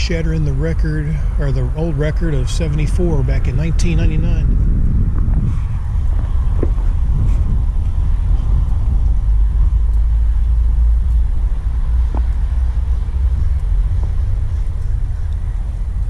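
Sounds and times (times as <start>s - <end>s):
loud low rumble: 0.0s - 16.0s.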